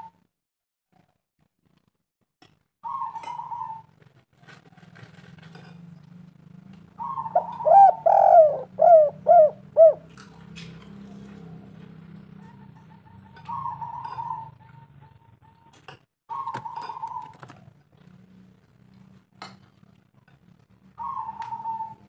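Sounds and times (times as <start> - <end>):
dove cooing: 2.8 - 3.9, 7.0 - 10.2, 12.3 - 15.6, 16.3 - 17.8, 21.0 - 22.0.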